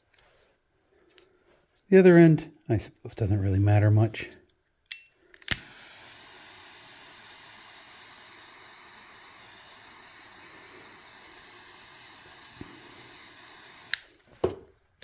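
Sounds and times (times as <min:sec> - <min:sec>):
heat gun hissing: 0:05.4 - 0:14.2.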